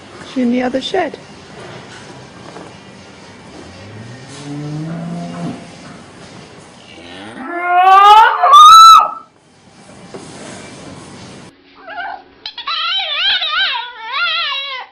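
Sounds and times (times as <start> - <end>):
cow mooing: 3.7 - 5.9, 6.9 - 9.2.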